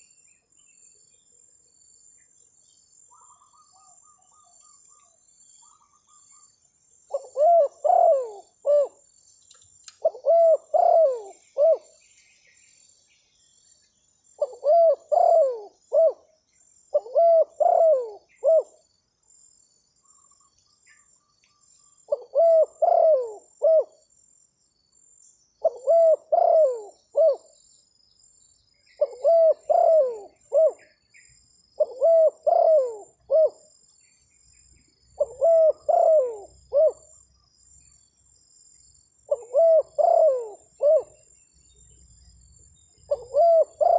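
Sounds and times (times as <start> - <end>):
dove cooing: 7.1 - 9.0, 10.0 - 11.9, 14.4 - 16.3, 16.9 - 18.8, 22.1 - 24.0, 25.6 - 27.5, 29.0 - 30.9, 31.8 - 33.6, 35.2 - 37.2, 39.3 - 41.2, 43.1 - 43.9.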